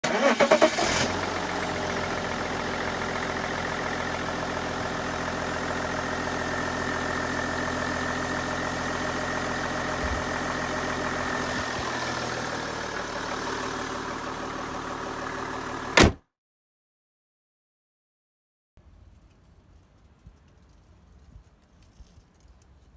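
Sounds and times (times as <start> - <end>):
diesel engine idling: 0.0 - 16.1.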